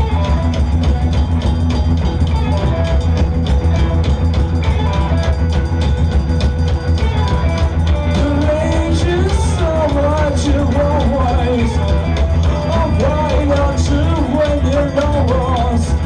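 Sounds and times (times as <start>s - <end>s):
drum kit beat: 0.0s - 16.0s
live rock band playing: 0.0s - 16.0s.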